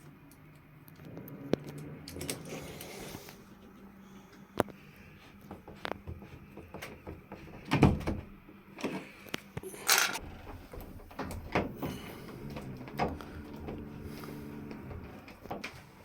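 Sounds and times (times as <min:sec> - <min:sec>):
parts clicking and knocking: 0:05.8 - 0:15.8.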